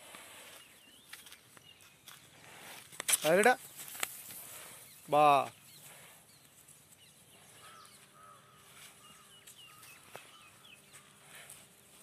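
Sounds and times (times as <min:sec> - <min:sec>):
outdoor background noise: 0:00.0 - 0:12.0
bird chirping: 0:00.5 - 0:02.2, 0:04.6 - 0:11.2.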